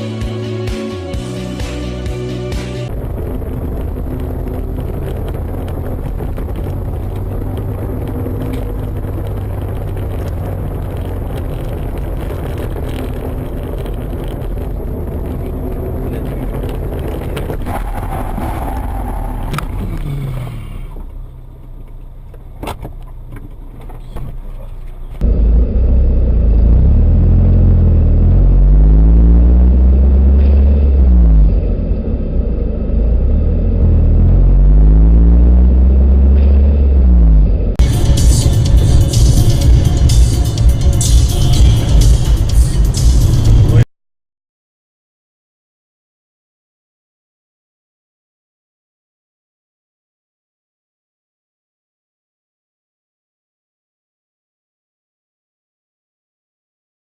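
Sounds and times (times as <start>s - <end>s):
car engine: 0.0s - 43.9s
road noise: 0.0s - 43.9s.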